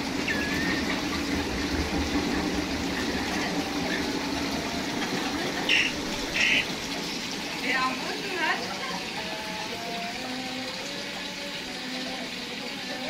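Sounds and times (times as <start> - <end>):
gliding bird call: 0.0 - 7.0
steady rushing noise: 0.0 - 7.4
faint bird chirps: 0.2 - 1.0.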